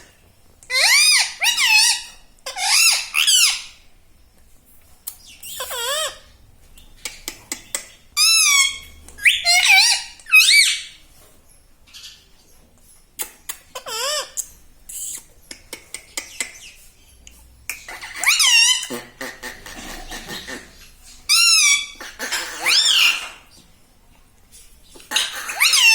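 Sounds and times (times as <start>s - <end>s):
parrot whistling and squawking: 0.7s - 3.8s, 5.4s - 6.3s, 8.2s - 11.0s, 13.2s - 15.3s, 17.7s - 23.5s, 25.1s - 25.9s.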